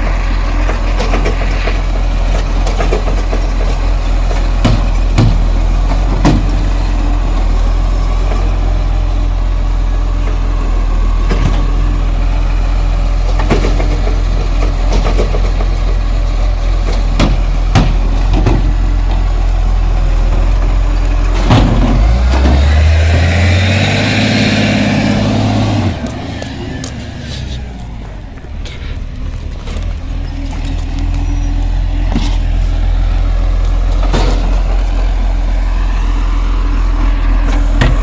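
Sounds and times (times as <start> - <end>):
diesel garbage truck idling: 0.0 - 38.0
engine revving with whine: 18.2 - 38.0.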